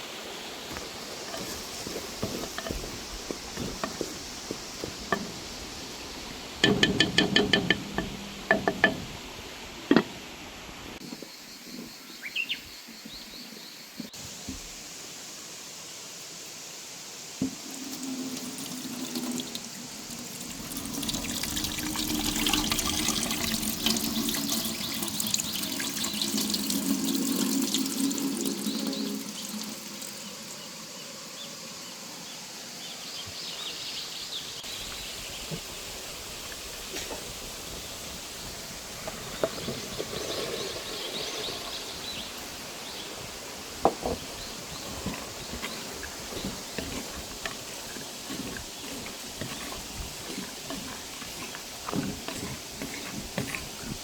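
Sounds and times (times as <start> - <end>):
water pouring into a vessel: 17.5 - 30.6, 44.4 - 54.0.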